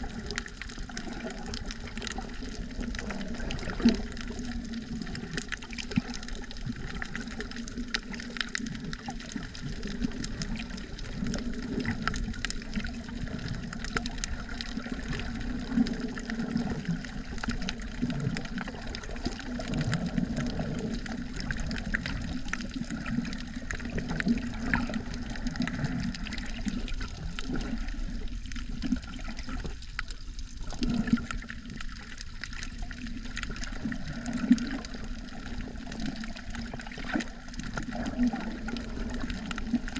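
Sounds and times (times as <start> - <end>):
underwater sloshing and gurgling: 0.0 - 39.9.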